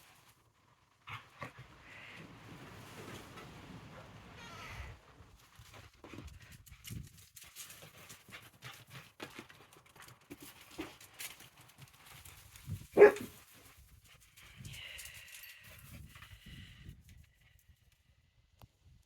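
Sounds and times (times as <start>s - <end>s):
dogs scuffling: 5.6s - 14.4s
dog barking: 13.0s - 13.3s.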